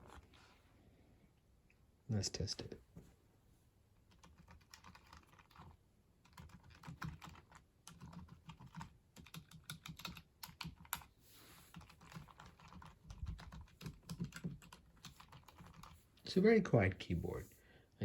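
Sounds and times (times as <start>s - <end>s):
quiet keyboard keystroke clicks: 4.1s - 11.1s, 11.7s - 16.0s.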